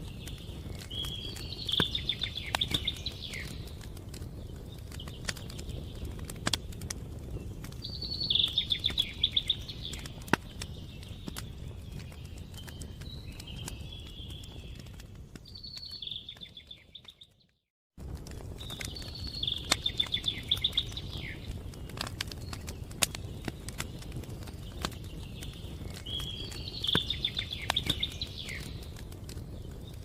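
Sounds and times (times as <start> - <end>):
small birds chirping: 0.0 - 17.6, 18.2 - 30.0
wood fire crackling and popping: 0.0 - 30.0.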